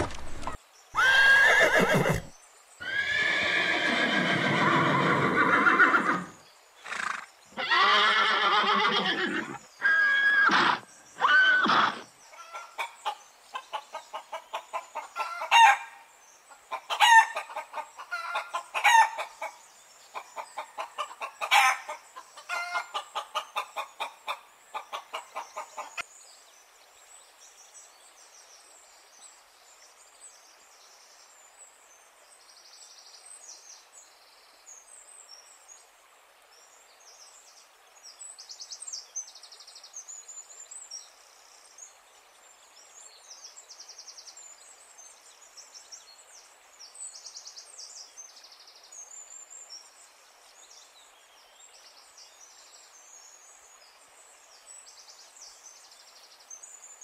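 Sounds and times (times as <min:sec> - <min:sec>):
horse whinnying: 0:00.4 - 0:12.1
chickens clucking and squawking: 0:12.4 - 0:15.8, 0:16.6 - 0:26.0.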